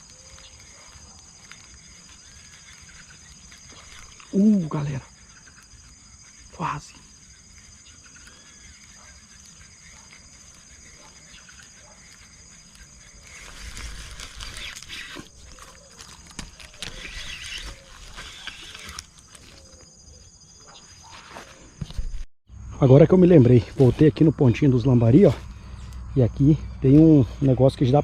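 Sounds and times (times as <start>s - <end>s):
insects trilling: 0.0s - 28.0s
rustling and handling noise: 11.6s - 20.0s.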